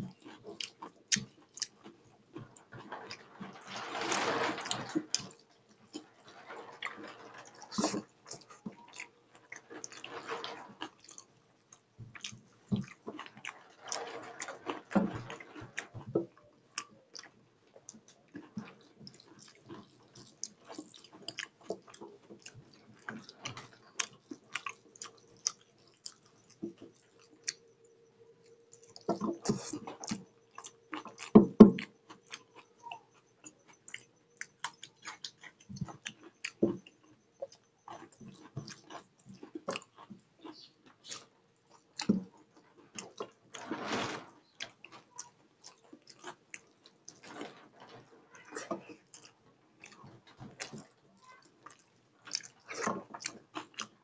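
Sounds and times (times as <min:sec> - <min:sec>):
man chewing with wet smacks: 0:00.0 - 0:03.2, 0:10.8 - 0:13.7, 0:14.7 - 0:43.5, 0:44.6 - 0:47.3, 0:48.4 - 0:54.0.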